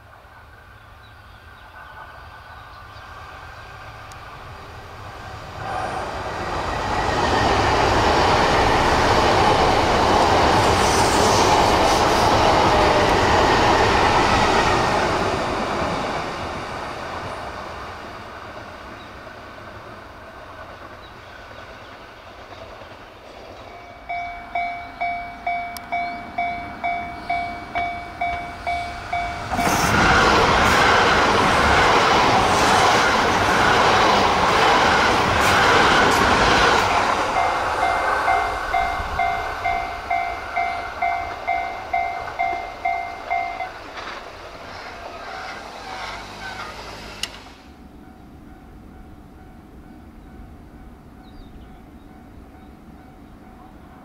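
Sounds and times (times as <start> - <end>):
high-speed train rushing past: 0.0 - 54.0
level crossing warning bell: 23.7 - 30.0, 37.2 - 43.9.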